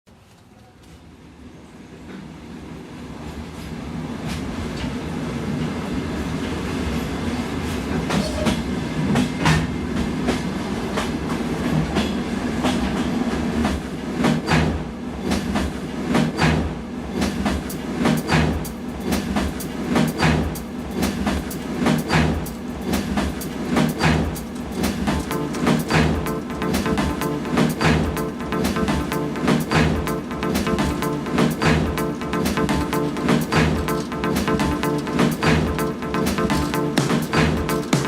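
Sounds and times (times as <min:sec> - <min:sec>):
train wheels clattering over rail joints: 0:07.6 - 0:26.1.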